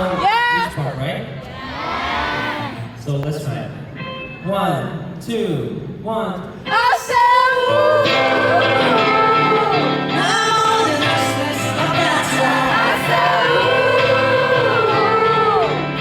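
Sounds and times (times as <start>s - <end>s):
live backing music: 3.4s - 16.0s
audience singing together: 6.7s - 16.0s.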